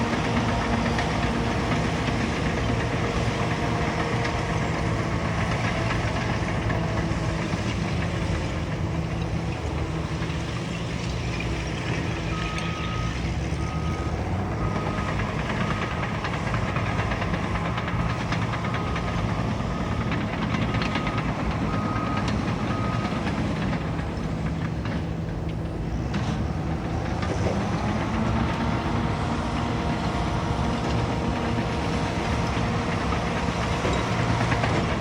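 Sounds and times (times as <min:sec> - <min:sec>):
bulldozer diesel engine: 0:00.0 - 0:35.0
reversing alarm beeping: 0:12.2 - 0:24.1.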